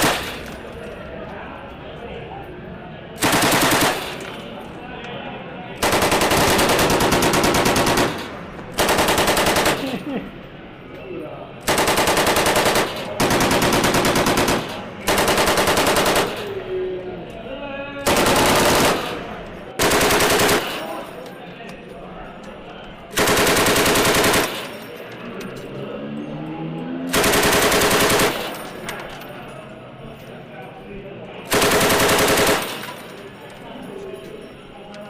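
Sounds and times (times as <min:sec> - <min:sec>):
machine gun firing in bursts: 0:00.0 - 0:00.6, 0:03.2 - 0:04.3, 0:05.8 - 0:10.0, 0:11.6 - 0:16.6, 0:18.0 - 0:21.1, 0:23.2 - 0:24.8, 0:27.1 - 0:28.8, 0:31.5 - 0:33.1.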